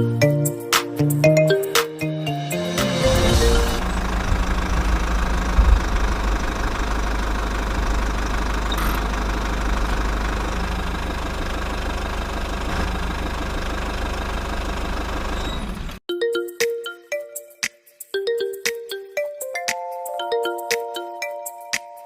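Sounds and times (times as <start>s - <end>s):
small diesel engine knocking: 3.8s - 16.0s.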